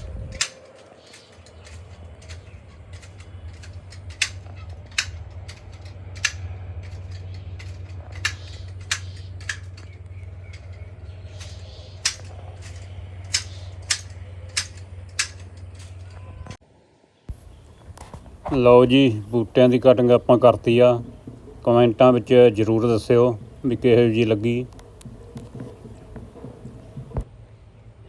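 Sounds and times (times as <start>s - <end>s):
garden shears snipping branches: 0.0s - 16.3s, 17.3s - 27.3s
steady low hum: 17.3s - 27.3s.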